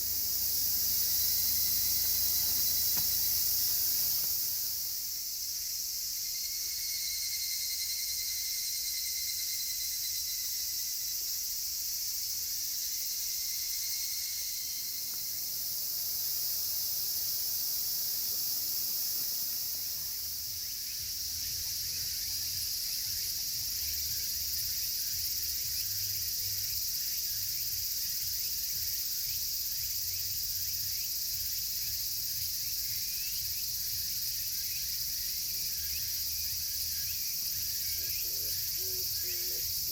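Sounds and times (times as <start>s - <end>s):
campfire crackling: 0.0s - 5.1s, 15.1s - 20.4s
cicadas shrilling: 0.0s - 39.9s
fainter higher insect call: 0.0s - 39.9s.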